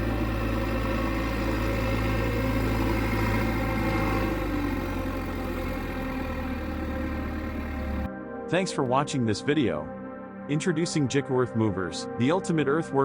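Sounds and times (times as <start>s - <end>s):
diesel engine running at low revs: 0.0s - 8.1s.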